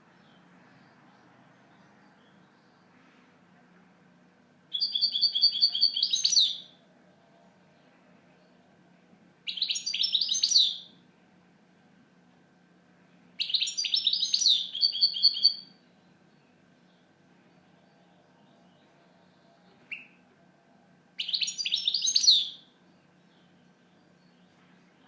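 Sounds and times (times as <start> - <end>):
goldfinch twittering song: 4.7 - 6.7, 9.5 - 10.9, 13.4 - 15.7, 21.2 - 22.6.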